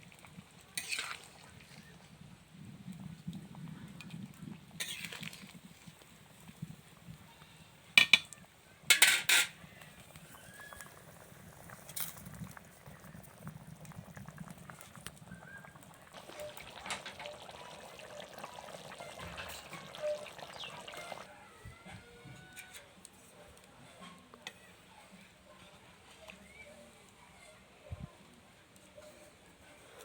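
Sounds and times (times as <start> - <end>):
liquid bubbling in a pot: 0.0 - 21.3.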